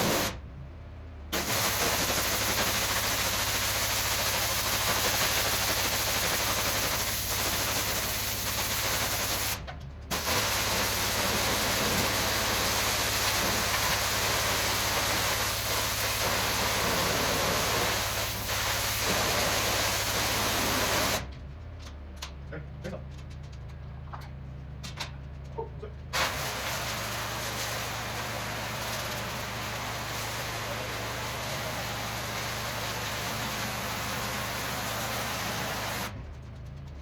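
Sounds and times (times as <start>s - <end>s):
pressure washer spraying water: 0.0s - 0.4s, 1.4s - 21.2s, 26.2s - 36.1s.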